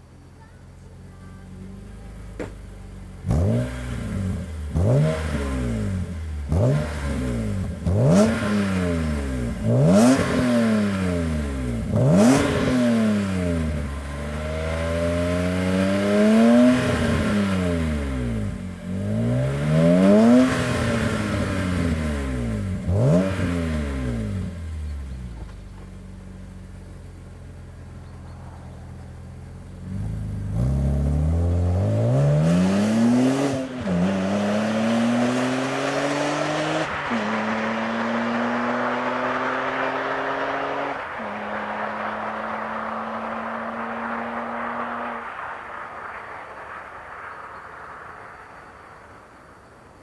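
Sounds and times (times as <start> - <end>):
car engine revving from idle: 1.5 - 28.2.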